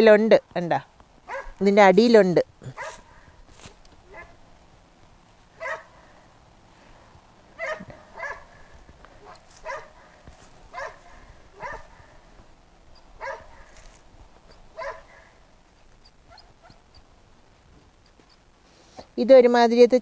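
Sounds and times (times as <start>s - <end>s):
animal yelping: 5.6s - 5.9s, 7.6s - 8.6s, 10.7s - 12.2s, 12.9s - 13.8s, 14.5s - 15.4s, 16.0s - 17.1s.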